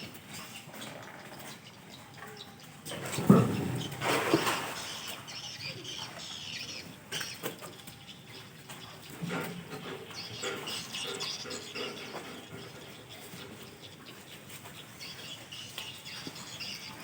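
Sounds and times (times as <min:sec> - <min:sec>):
crocodiles thrashing in water: 0:03.0 - 0:05.3.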